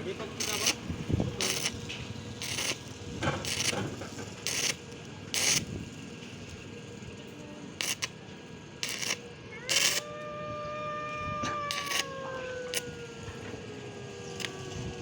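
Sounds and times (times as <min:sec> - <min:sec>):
rasping scrapes: 0:02.4 - 0:02.8.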